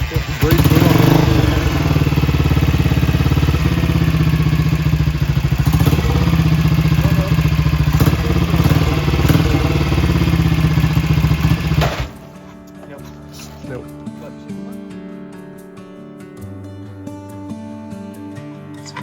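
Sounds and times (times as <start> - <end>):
single-cylinder motorcycle engine running: 0.0 - 12.4.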